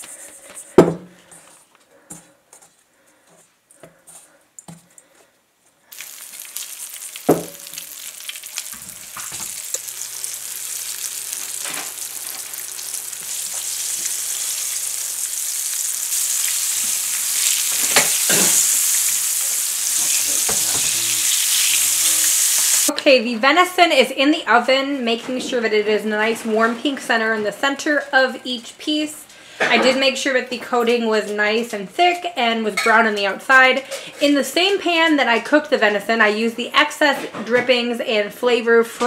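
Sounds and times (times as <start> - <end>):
meat sizzling in hot oil: 5.9 - 22.9.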